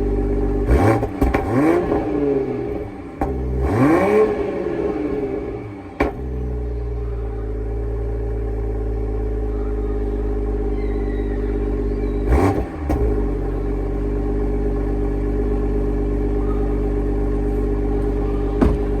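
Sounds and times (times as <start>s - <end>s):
car engine idling: 0.0s - 19.0s
engine rev blip: 9.4s - 13.9s.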